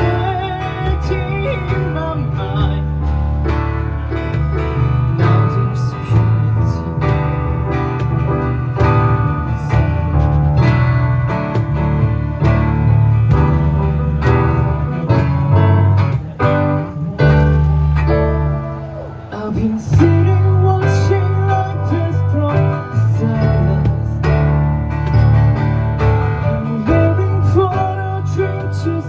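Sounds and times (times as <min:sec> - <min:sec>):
bass guitar line: 0:00.0 - 0:29.0
cajon beat: 0:00.0 - 0:29.0
keyboard chords: 0:00.0 - 0:29.0
lead melody line: 0:00.0 - 0:29.0
strummed acoustic guitar: 0:00.0 - 0:29.0.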